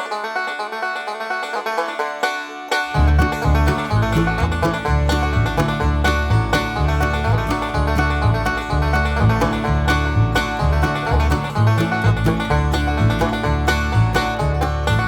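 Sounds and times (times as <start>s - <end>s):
banjo-led bluegrass music: 0.0s - 15.0s.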